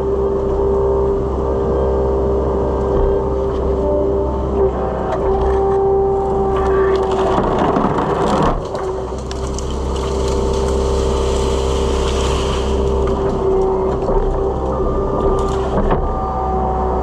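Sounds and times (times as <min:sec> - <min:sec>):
hydraulic whine: 0:00.0 - 0:17.0
skid steer engine running: 0:00.0 - 0:17.0.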